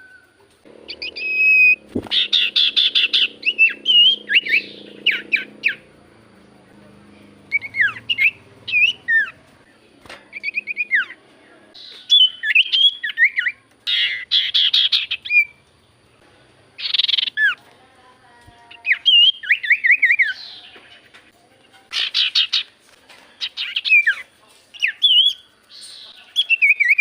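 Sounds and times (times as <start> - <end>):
iora whistled calls: 0.0 - 5.9, 7.2 - 9.4, 10.3 - 11.2, 11.8 - 15.6, 16.8 - 17.6, 18.7 - 20.8, 23.4 - 27.0
warbled bird trill: 0.0 - 9.7, 10.3 - 15.6, 16.8 - 17.6, 18.7 - 20.8
harsh rasping bird chatter: 0.6 - 16.2, 16.8 - 17.6, 18.7 - 27.0.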